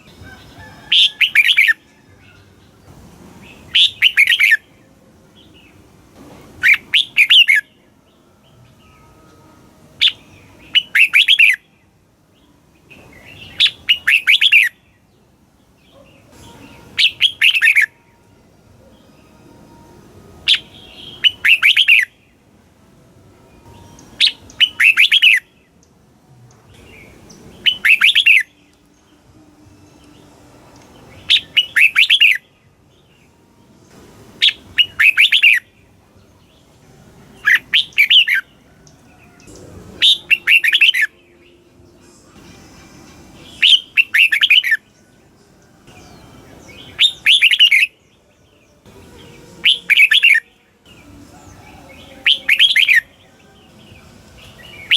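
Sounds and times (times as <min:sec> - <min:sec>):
bird whistled song: 0:00.0 - 0:02.5, 0:03.5 - 0:04.8, 0:06.6 - 0:09.1, 0:10.0 - 0:11.8, 0:12.4 - 0:15.1, 0:15.9 - 0:18.1, 0:20.4 - 0:22.4, 0:23.6 - 0:25.9, 0:26.8 - 0:28.8, 0:30.8 - 0:32.7, 0:34.4 - 0:35.9, 0:37.4 - 0:42.1, 0:43.4 - 0:45.2, 0:45.9 - 0:54.9.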